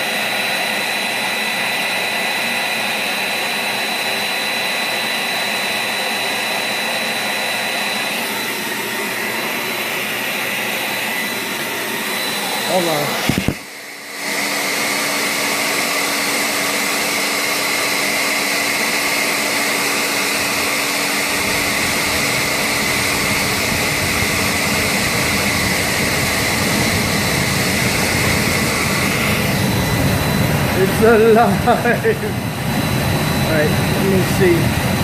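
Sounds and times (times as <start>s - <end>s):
air blower hiss and motor whine: 0.0s - 35.0s
gas burner rumble: 21.3s - 35.0s.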